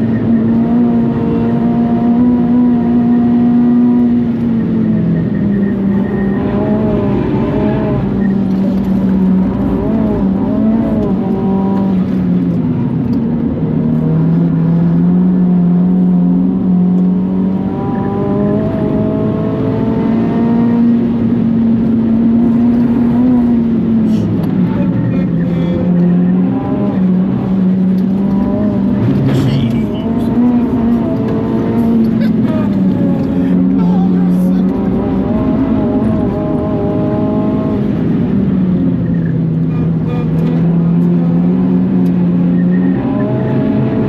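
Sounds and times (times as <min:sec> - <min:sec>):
car engine running under load: 0:00.0 - 0:44.0.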